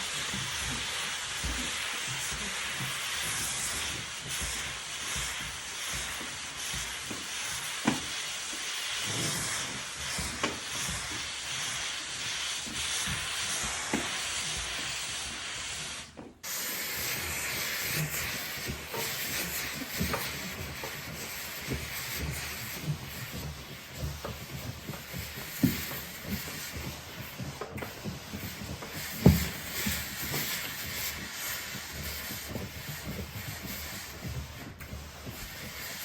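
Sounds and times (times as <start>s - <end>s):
steam cleaner hissing: 0.0s - 36.0s.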